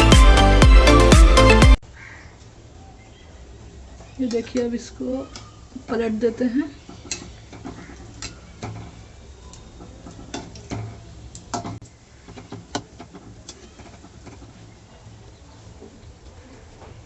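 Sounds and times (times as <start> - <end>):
hot oil frying: 6.9 - 16.8.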